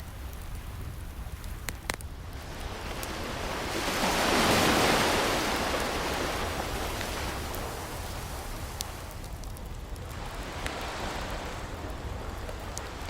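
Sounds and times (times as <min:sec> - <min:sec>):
wood fire crackles: 0:00.0 - 0:13.0
ocean wave breaking: 0:02.8 - 0:08.8.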